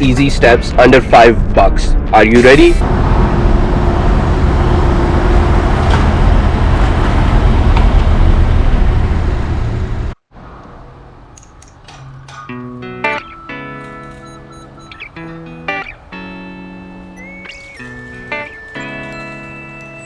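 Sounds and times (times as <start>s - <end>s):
traffic rumbling: 0.0s - 20.0s
guitar music: 12.4s - 20.0s.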